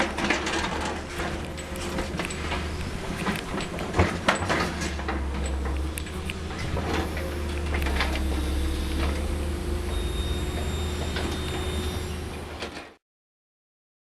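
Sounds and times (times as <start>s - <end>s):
machine clicks and rattles: 0.0s - 9.3s
excavator diesel engine drone: 0.0s - 13.0s.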